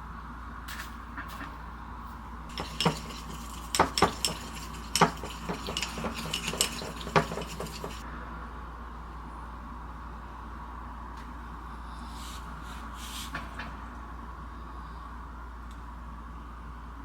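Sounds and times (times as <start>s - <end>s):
cutlery clinking on dishes: 2.5s - 8.0s.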